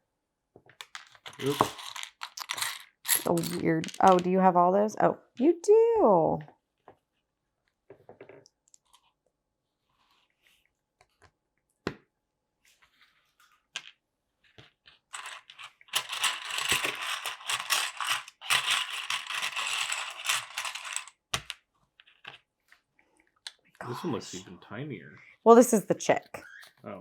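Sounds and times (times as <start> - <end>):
plastic pieces rattling: 0.8 - 4.3, 15.1 - 21.5
plastic toy bricks clicking: 0.8 - 4.3, 15.2 - 21.6.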